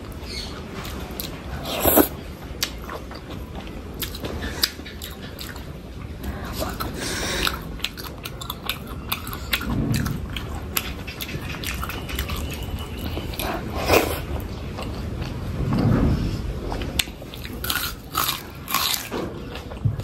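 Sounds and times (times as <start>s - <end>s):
chewing and biting food: 6.5s - 15.4s, 17.0s - 19.8s.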